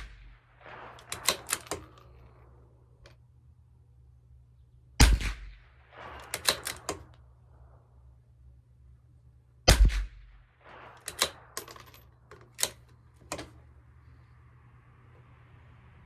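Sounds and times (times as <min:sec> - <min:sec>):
rifle shot: 0:00.0 - 0:03.1, 0:05.0 - 0:07.3, 0:09.7 - 0:13.6
rifle bolt clicking: 0:01.0 - 0:02.2, 0:06.2 - 0:07.2, 0:11.0 - 0:13.6.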